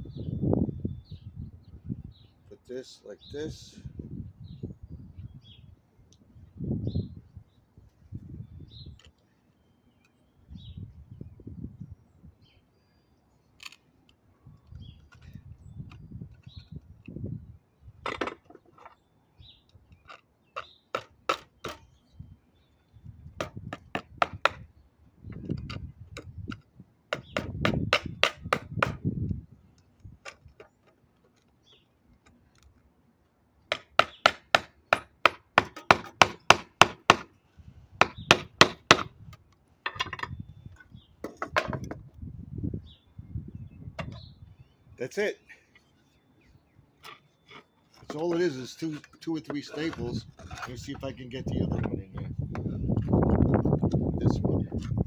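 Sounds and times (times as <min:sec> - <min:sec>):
hammer tapping staples: 0:27.1 - 0:29.0, 0:33.7 - 0:37.3, 0:38.0 - 0:39.1.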